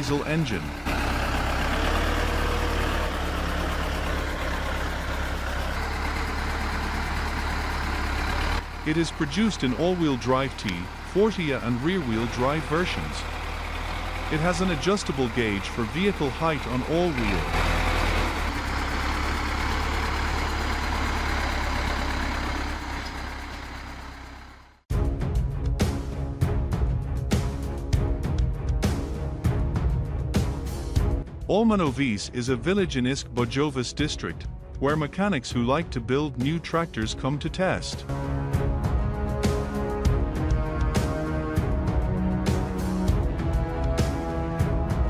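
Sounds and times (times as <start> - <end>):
tractor diesel engine humming: 0.0 - 24.8, 36.4 - 45.0.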